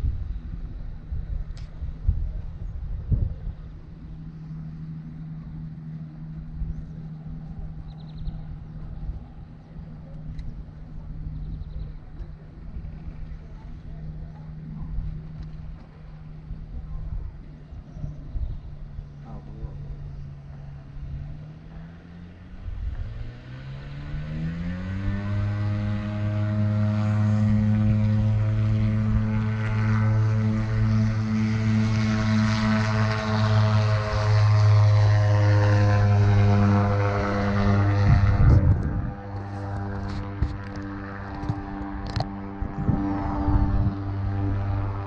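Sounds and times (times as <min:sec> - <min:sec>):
aircraft engine idling: 0:00.0 - 0:45.0
bird chirps: 0:07.8 - 0:08.7, 0:11.3 - 0:12.0.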